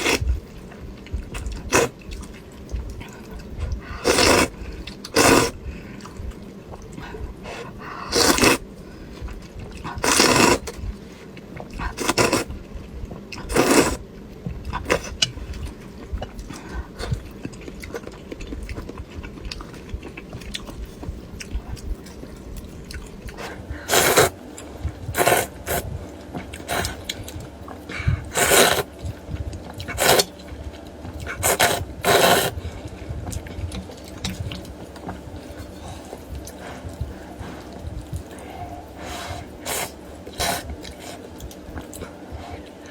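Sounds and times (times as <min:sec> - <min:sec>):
slurping noodles and broth: 0:00.0 - 0:00.3, 0:01.7 - 0:02.0, 0:03.9 - 0:05.6, 0:07.6 - 0:08.6, 0:09.9 - 0:10.8, 0:11.8 - 0:12.6, 0:13.4 - 0:14.0, 0:23.4 - 0:24.4, 0:25.1 - 0:26.0, 0:26.6 - 0:27.4, 0:28.1 - 0:29.0, 0:29.8 - 0:30.4, 0:31.3 - 0:32.8, 0:38.4 - 0:41.2
quiet chewing: 0:00.0 - 0:42.9.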